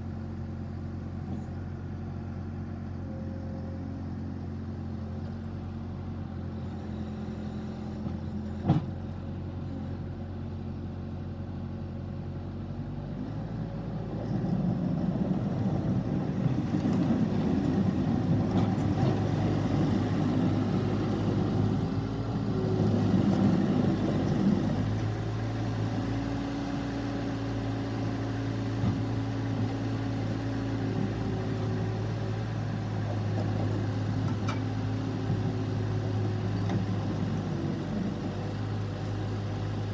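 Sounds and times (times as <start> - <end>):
diesel loader engine running: 0.0 - 39.9.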